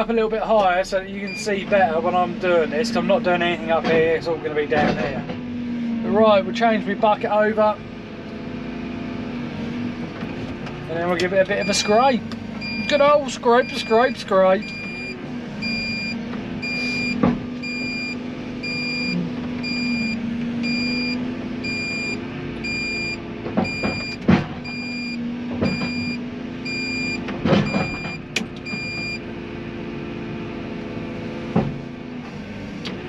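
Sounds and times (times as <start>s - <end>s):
excavator diesel engine: 0.0s - 33.0s
warning beeper: 1.2s - 1.6s, 11.6s - 29.2s.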